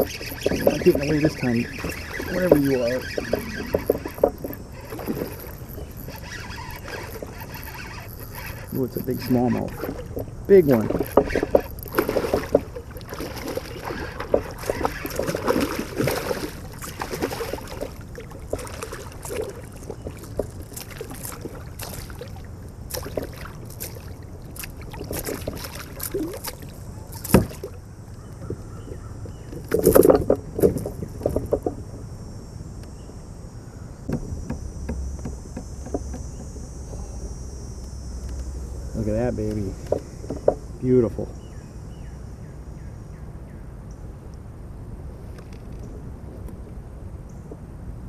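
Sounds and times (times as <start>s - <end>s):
water splashing: 0.0s - 27.8s
knocks and clicks on kayak: 0.0s - 32.0s, 34.1s - 37.4s, 39.5s - 40.7s.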